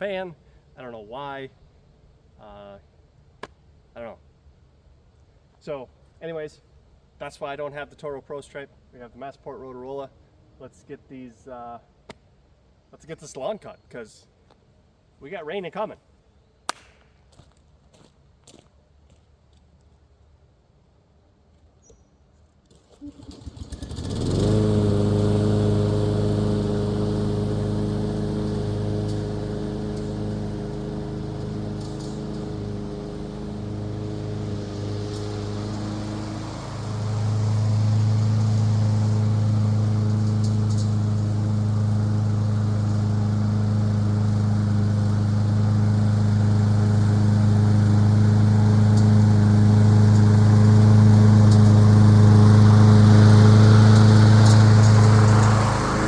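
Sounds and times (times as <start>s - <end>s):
lawn mower engine starting: 22.7s - 56.0s.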